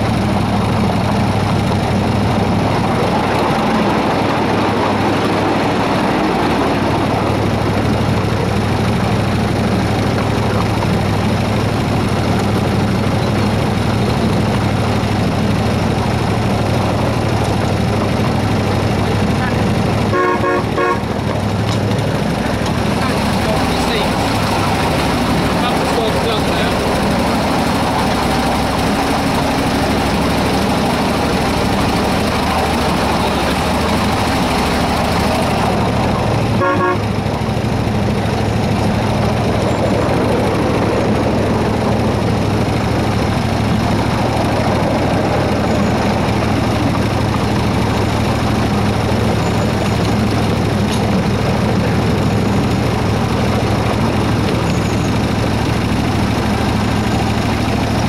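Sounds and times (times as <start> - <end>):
miniature locomotive engine running: 0.0 - 58.0
short horn toot: 36.6 - 37.1.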